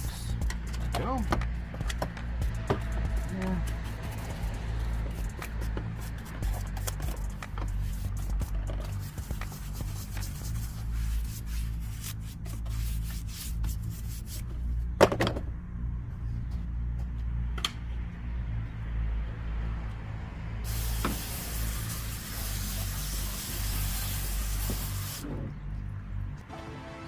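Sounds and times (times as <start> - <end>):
brush scrubbing: 2.5 - 14.5
spray hissing: 20.6 - 25.2.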